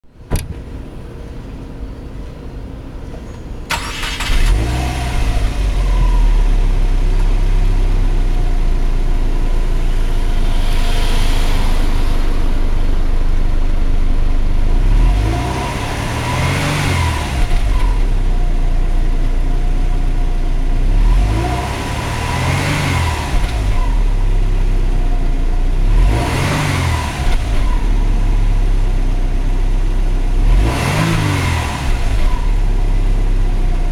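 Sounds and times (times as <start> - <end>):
car engine idling and revving: 0.4 - 33.9.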